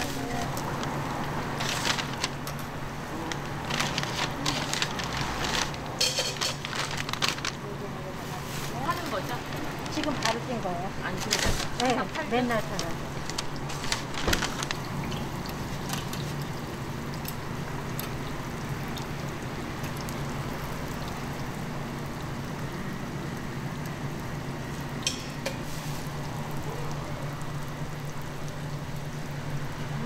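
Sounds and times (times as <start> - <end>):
food sizzling in oil: 8.2 - 26.6.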